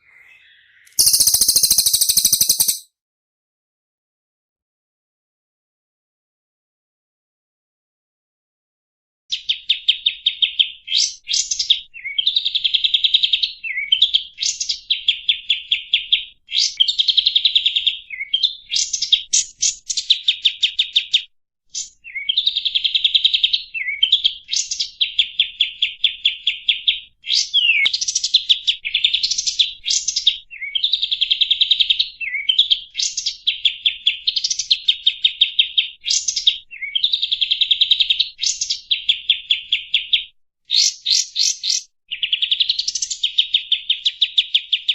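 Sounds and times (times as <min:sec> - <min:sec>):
songbird singing fast trills: 0:00.0 - 0:02.8.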